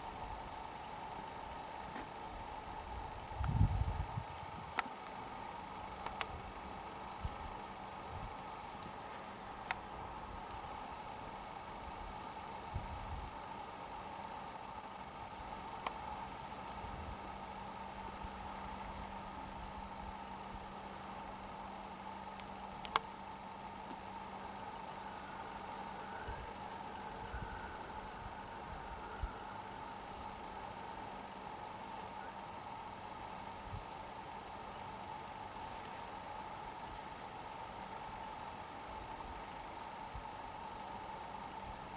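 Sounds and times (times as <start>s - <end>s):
insects chirring: 0.0s - 41.9s
faint clicks: 4.6s - 5.3s, 6.0s - 6.5s, 15.8s - 16.2s, 22.3s - 24.5s
low steady drone: 9.4s - 34.0s.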